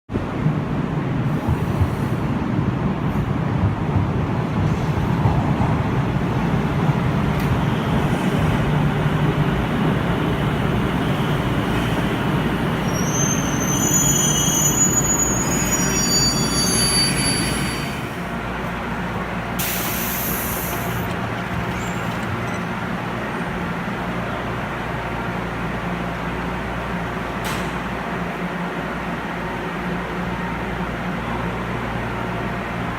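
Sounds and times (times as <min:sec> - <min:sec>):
train wheels rumbling on rail: 0:00.1 - 0:32.9
high wheel squeals: 0:12.7 - 0:18.2, 0:20.2 - 0:23.4.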